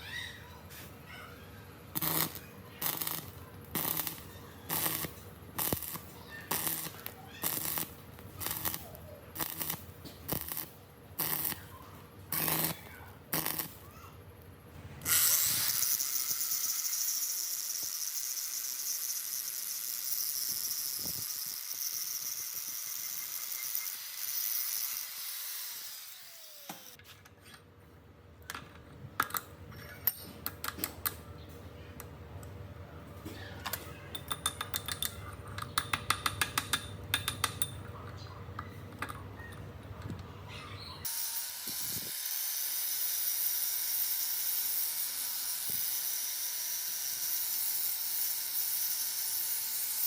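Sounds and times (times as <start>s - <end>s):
light metallic clicks and clinks: 33.7s - 40.3s.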